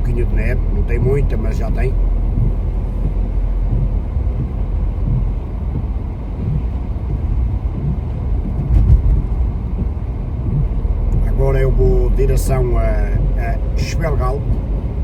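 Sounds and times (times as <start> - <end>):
car engine and tyre rumble: 0.0 - 15.0
brief thump: 8.5 - 9.5.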